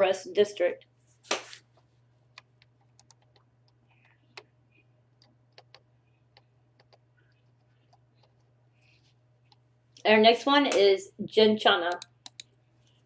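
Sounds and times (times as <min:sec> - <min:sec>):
low steady hum: 0:00.0 - 0:13.0
keyboard and mouse clicks: 0:02.4 - 0:04.5, 0:05.2 - 0:08.5, 0:11.9 - 0:12.5.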